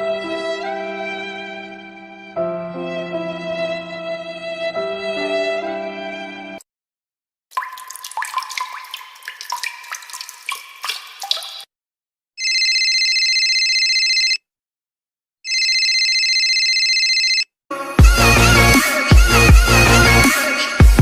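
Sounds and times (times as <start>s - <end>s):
water drops plinking: 7.5s - 11.7s
electronic telephone ringing: 12.4s - 14.4s, 15.5s - 17.5s.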